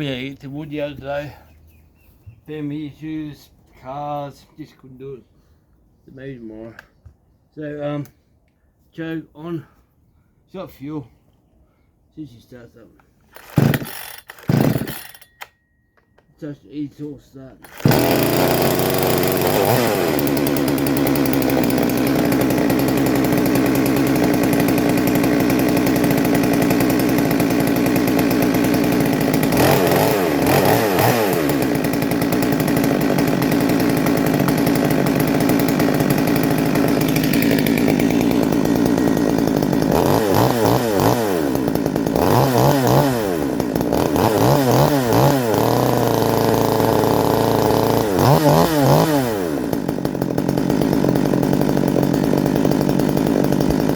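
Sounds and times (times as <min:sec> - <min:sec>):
chainsaw engine revving: 0:13.3 - 0:15.4, 0:17.6 - 0:53.9.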